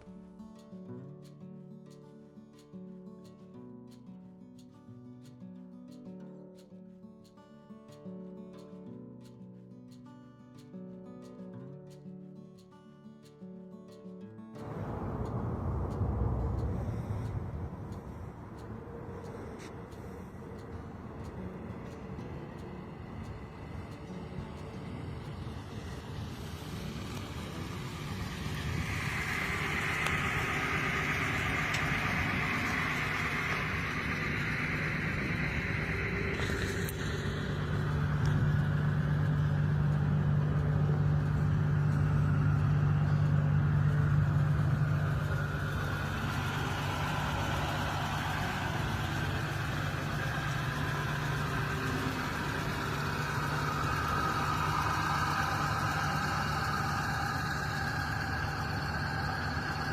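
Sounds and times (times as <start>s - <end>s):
vehicle engine idling: 14.6s - 59.9s.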